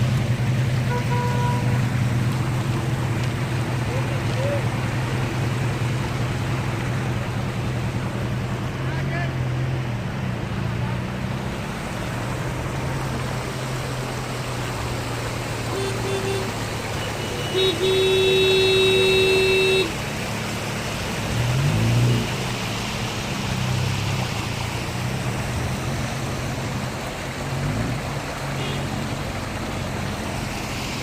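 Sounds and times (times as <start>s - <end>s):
street traffic noise: 0.0s - 31.0s
car horn honking: 0.9s - 1.9s, 15.7s - 20.0s, 28.6s - 28.9s.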